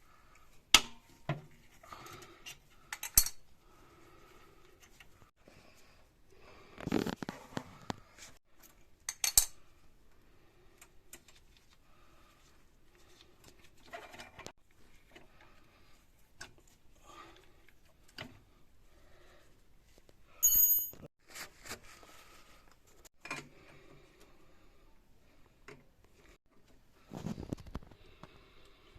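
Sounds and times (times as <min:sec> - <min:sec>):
ringing metallic clink: 0:20.4 - 0:21.0.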